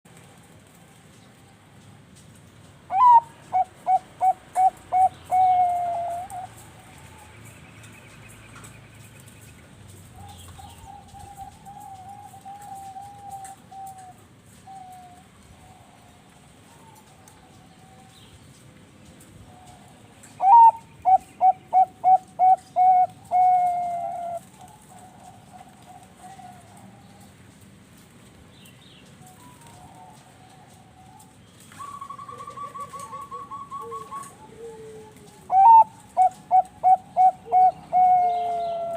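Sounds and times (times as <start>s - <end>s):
dove cooing: 2.9s - 7.2s, 10.2s - 18.1s, 19.5s - 27.3s, 29.3s - 38.9s
faint background cooing: 2.9s - 7.5s, 10.1s - 18.2s, 19.4s - 27.5s, 29.2s - 38.9s.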